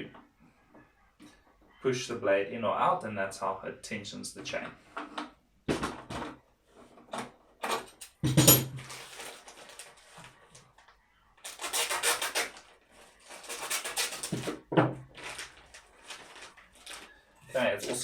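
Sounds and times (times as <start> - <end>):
metal chain rattling and scraping: 7.7 - 9.4.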